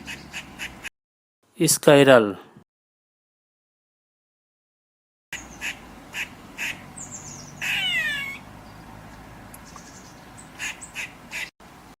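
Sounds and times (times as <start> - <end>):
squirrel chirping: 5.4 - 8.8, 9.6 - 11.5
squirrel squeal falling in pitch: 7.6 - 8.4.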